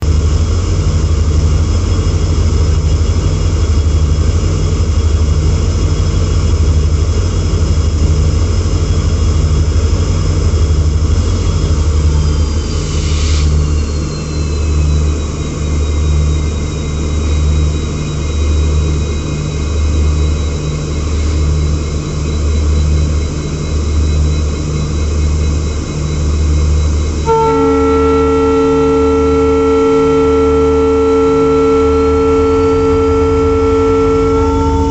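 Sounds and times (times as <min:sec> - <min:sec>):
diesel train rumbling: 0:00.0 - 0:34.9
high whining tones: 0:09.8 - 0:34.9
train horn chord: 0:27.2 - 0:34.9.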